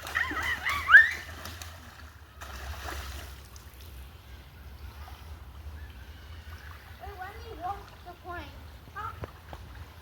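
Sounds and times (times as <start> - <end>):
water wash: 0.0 - 4.2.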